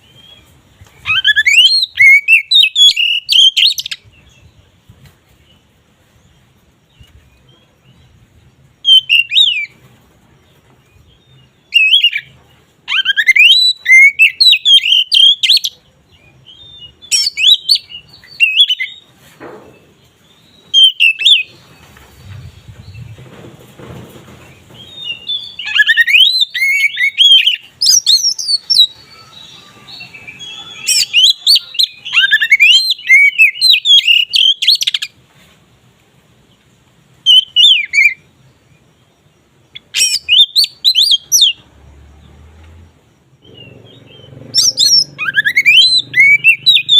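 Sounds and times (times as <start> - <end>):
bird singing whistled phrases: 1.0 - 4.0, 8.8 - 9.8, 11.7 - 12.3, 12.9 - 15.8, 16.5 - 19.0, 20.7 - 21.5, 24.9 - 35.1, 37.3 - 38.2, 39.8 - 41.6, 43.4 - 46.9.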